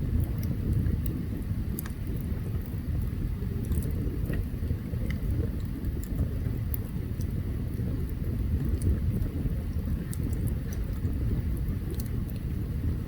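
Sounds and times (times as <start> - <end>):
wood crackling and popping: 0.0 - 12.5
low fire rumble: 0.0 - 13.0.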